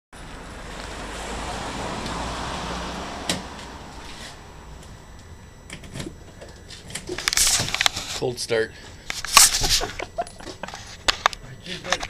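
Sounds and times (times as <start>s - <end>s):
car engine running: 0.2s - 6.4s.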